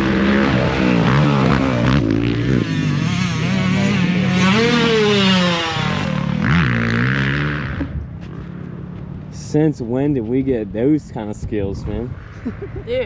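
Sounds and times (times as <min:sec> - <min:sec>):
dirt bike engine revving: 0:00.0 - 0:09.0.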